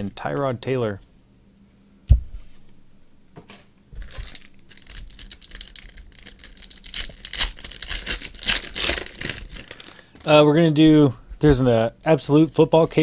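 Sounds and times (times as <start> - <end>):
foil wrapper crinkling: 4.0 - 10.3.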